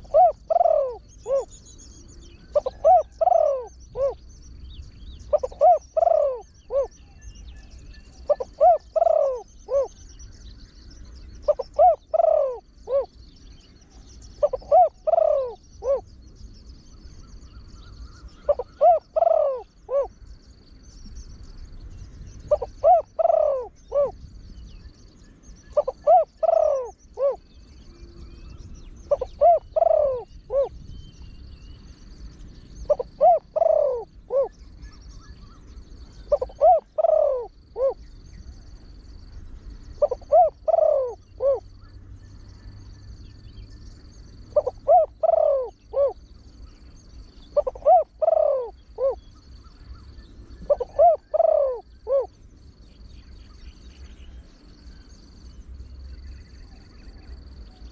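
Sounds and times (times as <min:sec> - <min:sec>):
dove cooing: 0:00.0 - 0:01.6, 0:02.4 - 0:04.2, 0:05.3 - 0:07.0, 0:08.2 - 0:10.0, 0:11.4 - 0:13.2, 0:14.4 - 0:16.1, 0:17.8 - 0:20.2, 0:22.4 - 0:24.2, 0:25.7 - 0:28.2, 0:29.0 - 0:30.8, 0:32.7 - 0:38.1, 0:39.9 - 0:41.9, 0:44.3 - 0:46.2, 0:47.2 - 0:52.4.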